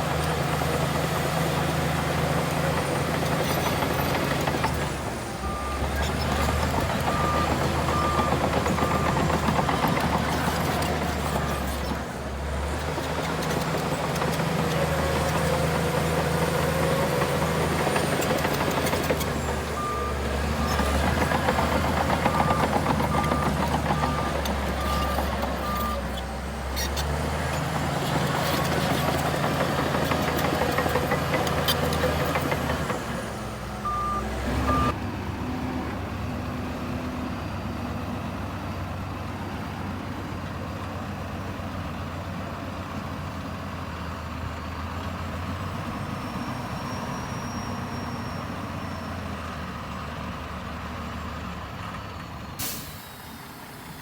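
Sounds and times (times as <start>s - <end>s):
diesel earth-moving machinery running: 0.0s - 54.0s
reversing alarm beeping: 33.8s - 35.0s.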